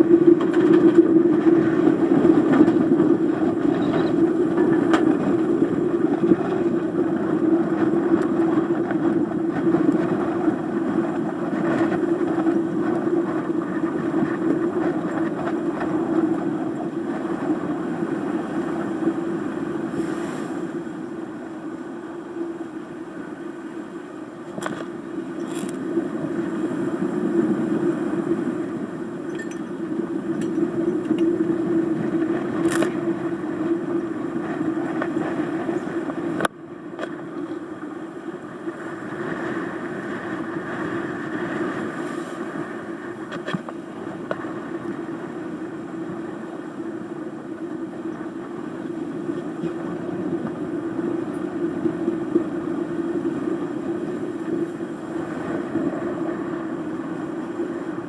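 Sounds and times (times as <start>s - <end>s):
gale-force wind: 0.0s - 58.0s.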